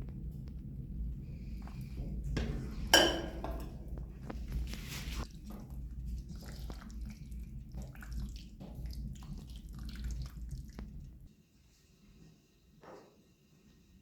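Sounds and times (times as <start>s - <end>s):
low steady hum: 0.0s - 11.3s
wet squelches of pasta: 3.8s - 11.3s.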